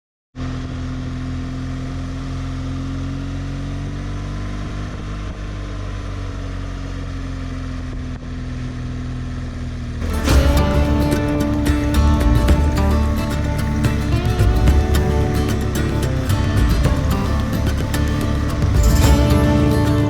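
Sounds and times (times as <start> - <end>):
motorcycle engine running: 0.4 - 20.0
steady rush of noise: 10.0 - 20.0.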